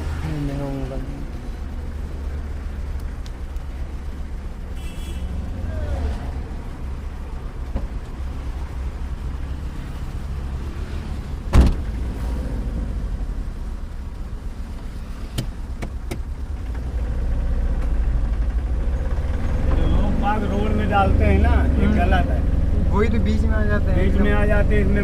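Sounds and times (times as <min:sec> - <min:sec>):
truck engine and road rumble: 0:00.0 - 0:25.0
loud thump: 0:11.5 - 0:11.9.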